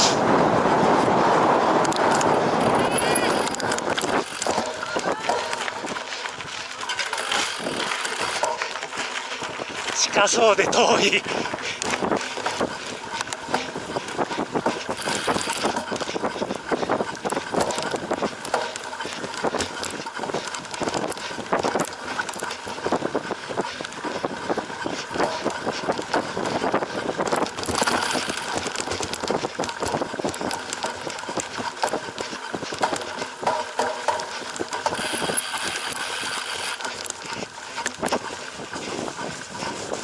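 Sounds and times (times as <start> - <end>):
bike tyre noise: 0.0 - 40.0
bike rattling and knocking: 0.6 - 40.0.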